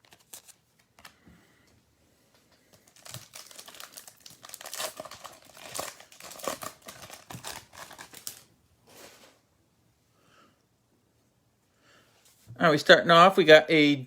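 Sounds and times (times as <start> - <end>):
plastic wrapper tearing and crinkling: 0.0 - 1.2, 2.7 - 8.5.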